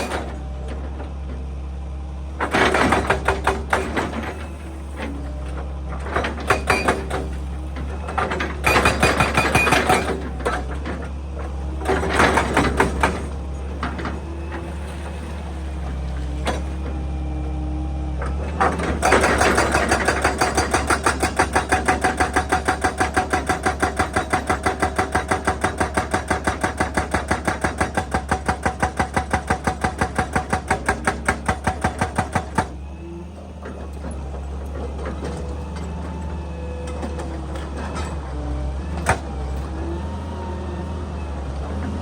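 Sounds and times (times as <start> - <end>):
diesel engine running: 0.0 - 42.0
hydraulic breaker hammering rock: 2.4 - 4.6, 6.0 - 11.1, 11.8 - 14.2, 18.6 - 32.8.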